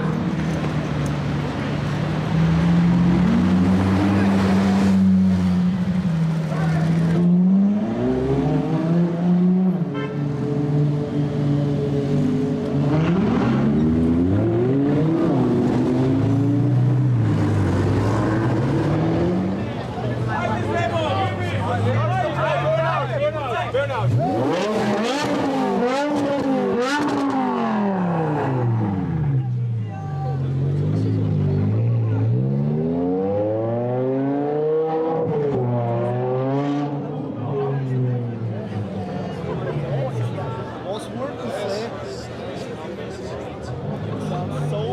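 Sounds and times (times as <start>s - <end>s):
sports car engine revving: 2.2s - 19.7s, 24.0s - 29.4s.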